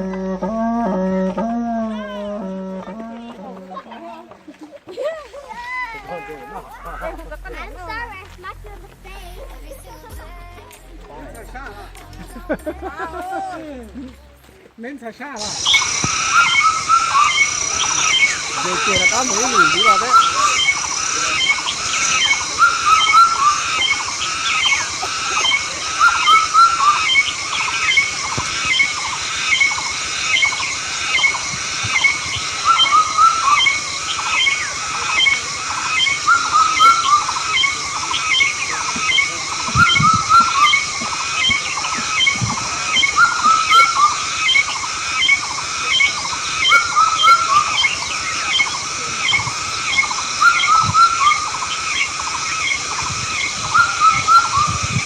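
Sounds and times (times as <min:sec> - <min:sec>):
animal calling: 0:00.0 - 0:04.3, 0:15.4 - 0:55.0
steady high hiss: 0:04.9 - 0:55.0.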